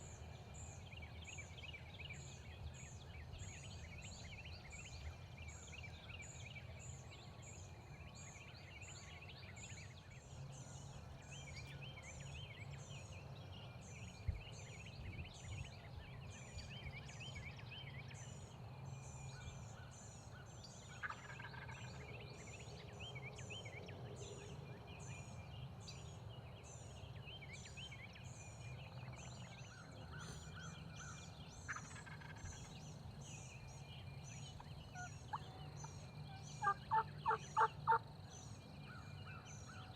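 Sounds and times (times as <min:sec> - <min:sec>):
distant turkey gobbling: 0:36.6 - 0:38.0.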